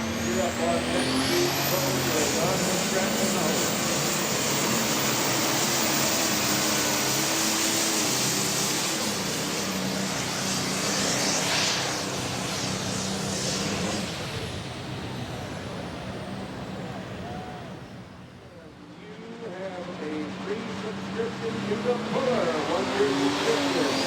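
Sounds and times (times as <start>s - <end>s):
pulling tractor engine at full power: 0.0s - 24.0s.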